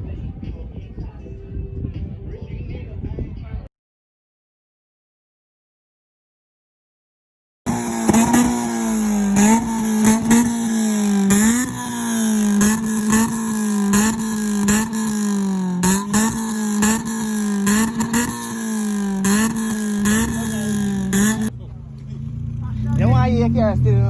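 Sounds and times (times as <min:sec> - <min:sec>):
car engine revving: 0:07.7 - 0:24.0
sharp exhaust cracks: 0:07.7 - 0:24.0.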